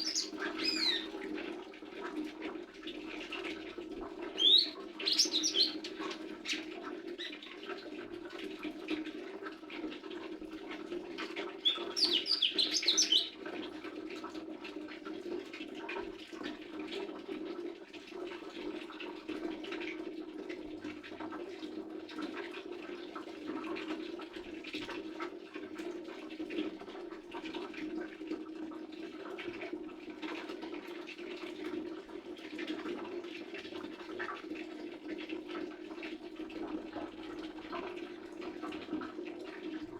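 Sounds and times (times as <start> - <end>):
bird rapid high chirps: 0.0 - 1.1, 4.4 - 5.8, 11.6 - 13.3.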